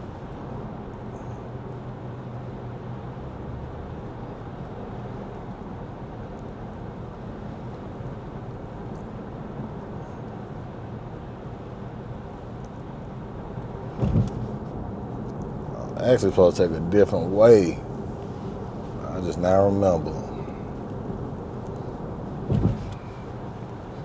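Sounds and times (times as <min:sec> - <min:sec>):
low engine hum: 0:00.0 - 0:24.0
tyre and road noise: 0:00.0 - 0:24.0.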